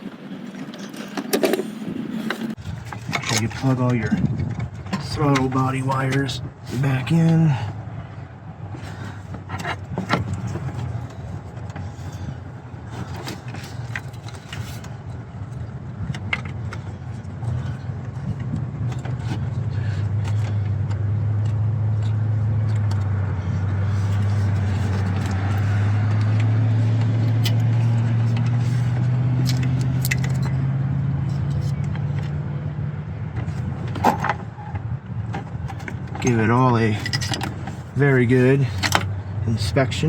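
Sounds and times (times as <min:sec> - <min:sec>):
low motor hum: 0:00.0 - 0:40.0
metallic clicks and clinks: 0:29.4 - 0:30.6.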